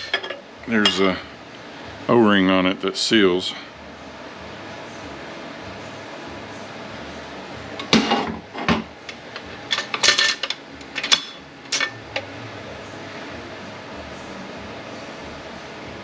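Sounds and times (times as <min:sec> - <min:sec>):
metal parts clanking: 0:09.7 - 0:12.0.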